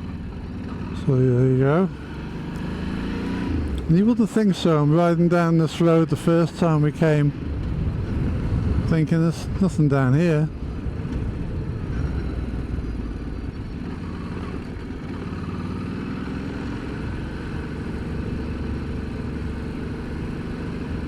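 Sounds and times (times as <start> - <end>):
motorcycle engine running: 0.0 - 5.0, 10.5 - 21.0.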